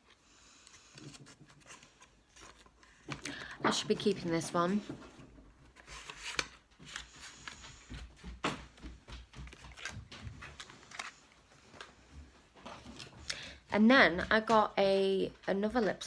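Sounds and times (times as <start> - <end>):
packaging rustling: 0.0 - 8.6, 9.2 - 11.9.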